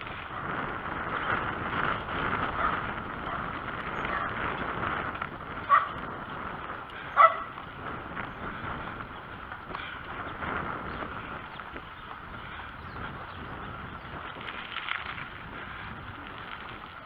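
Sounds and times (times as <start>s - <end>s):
outdoor background noise: 0.0s - 17.0s
dog barking: 5.7s - 6.0s, 7.2s - 7.5s.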